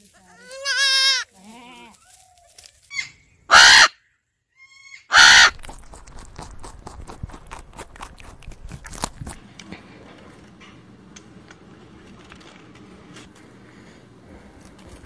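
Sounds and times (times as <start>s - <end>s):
goat kid bleating: 0.1s - 2.2s
macaw squawking: 2.9s - 4.0s, 4.6s - 5.6s
rabbits chewing hay: 5.5s - 15.0s.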